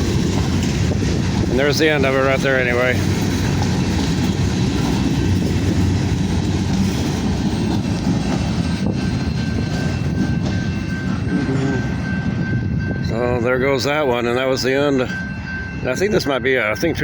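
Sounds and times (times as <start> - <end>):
freight train wheels rumbling on rails: 0.0 - 17.0.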